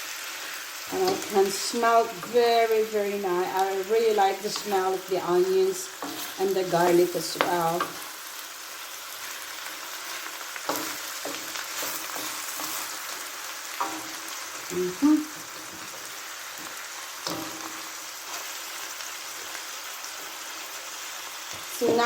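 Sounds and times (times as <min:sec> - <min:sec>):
food sizzling in a frying pan: 0:00.0 - 0:22.0
utensil scraping pan: 0:10.2 - 0:14.4.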